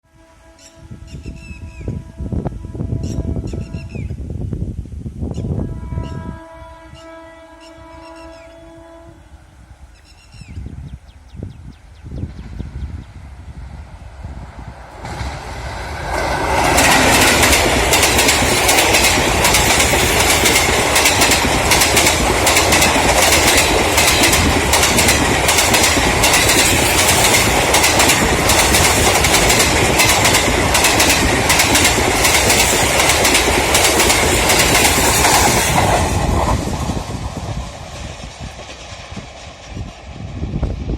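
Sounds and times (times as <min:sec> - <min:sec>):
train rushing past: 0:11.4 - 0:40.9
wheels clacking over rail joints: 0:14.9 - 0:40.0.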